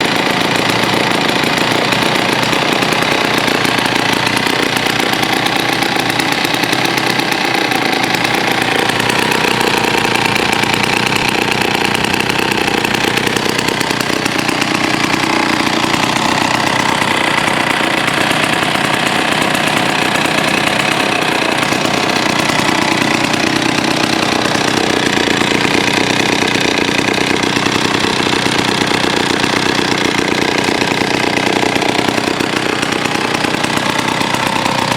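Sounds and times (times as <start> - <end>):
chainsaw engine running: 0.0 - 34.9.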